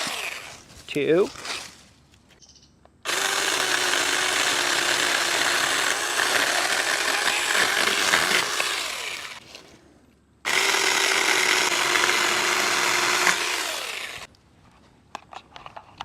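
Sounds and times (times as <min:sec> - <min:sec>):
electric chainsaw cutting log: 0:00.0 - 0:00.6, 0:03.1 - 0:09.4, 0:10.5 - 0:14.3.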